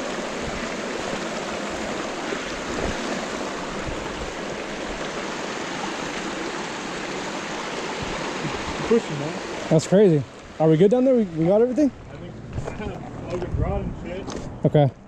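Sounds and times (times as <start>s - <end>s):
lake water washing on shore: 0.0s - 13.2s
wind buffeting microphone: 0.1s - 5.2s, 11.9s - 14.6s.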